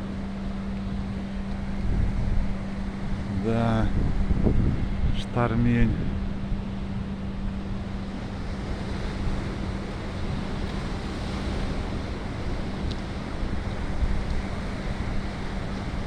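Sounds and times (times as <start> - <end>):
sea surf washing in: 0.0 - 16.0
steady low hum: 0.0 - 16.0
wind gusting on microphone: 0.0 - 16.0.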